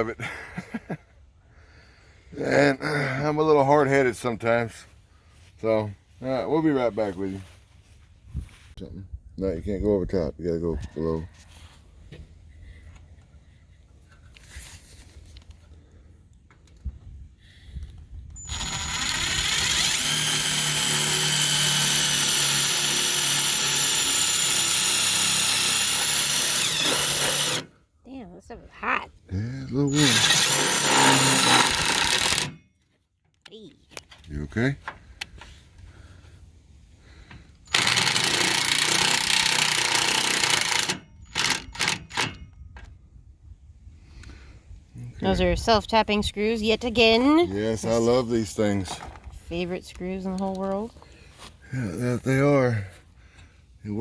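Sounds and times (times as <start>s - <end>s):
power drill boring into metal: 18.4s - 27.7s, 29.9s - 32.6s, 37.7s - 42.4s.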